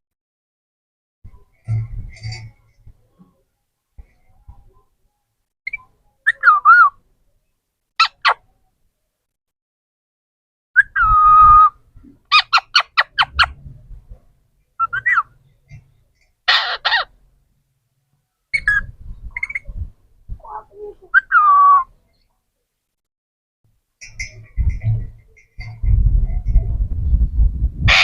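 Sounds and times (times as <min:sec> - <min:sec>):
parrot calling and screeching: 0:08.0 - 0:08.4, 0:12.3 - 0:13.6, 0:14.8 - 0:15.3, 0:16.5 - 0:17.1.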